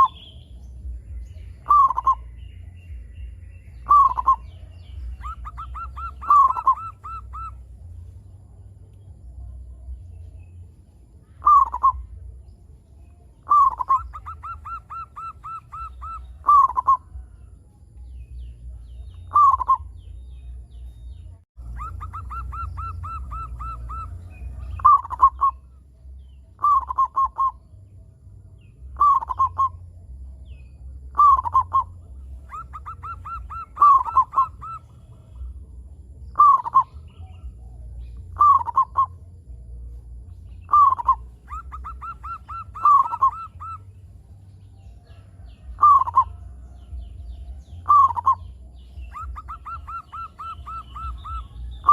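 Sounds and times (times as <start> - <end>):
dove cooing: 0.0 - 0.3, 1.6 - 2.3, 3.8 - 7.8, 11.4 - 12.2, 13.4 - 17.4, 19.2 - 20.0, 21.6 - 25.7, 26.6 - 27.6, 28.9 - 29.8, 31.1 - 35.6, 36.3 - 39.3, 40.6 - 44.0, 45.1 - 51.9
low rumble: 0.0 - 14.2, 15.0 - 51.9.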